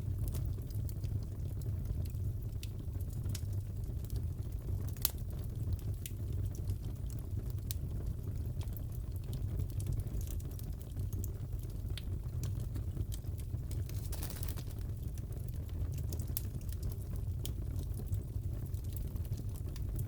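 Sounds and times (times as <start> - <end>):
fire pops and snaps: 0.1 - 6.8, 7.5 - 20.0
burning wood rumble: 11.3 - 20.0.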